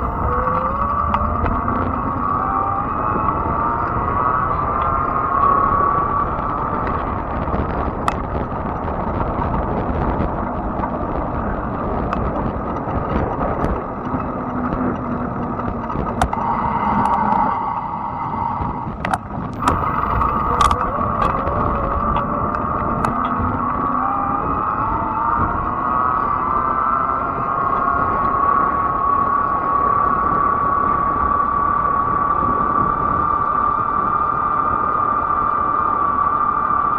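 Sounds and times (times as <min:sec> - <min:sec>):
electric motor whine: 0:00.0 - 0:08.2, 0:10.1 - 0:36.9
wind and tyre noise: 0:00.0 - 0:36.9
sharp clicks and knocks: 0:16.1 - 0:16.4, 0:19.0 - 0:23.5.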